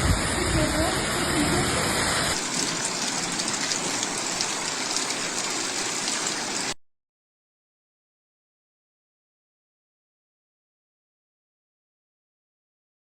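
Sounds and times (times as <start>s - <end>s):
heavy rain pouring: 0.0s - 6.8s.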